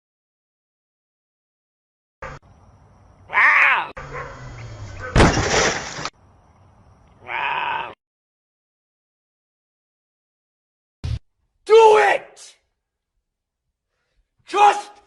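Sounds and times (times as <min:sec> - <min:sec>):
loud crash of something breaking: 0:05.1 - 0:06.1.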